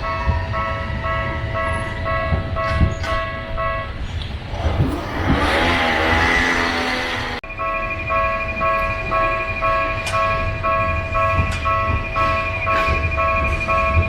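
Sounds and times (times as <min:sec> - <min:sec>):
level crossing warning bell: 0:00.0 - 0:14.0
street traffic rumble: 0:00.0 - 0:14.0.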